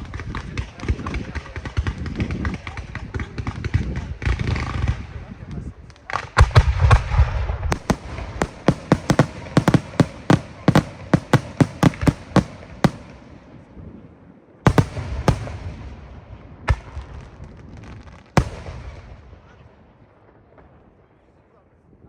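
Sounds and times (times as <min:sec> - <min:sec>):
fireworks bangs: 0:06.1 - 0:14.0, 0:14.6 - 0:20.8.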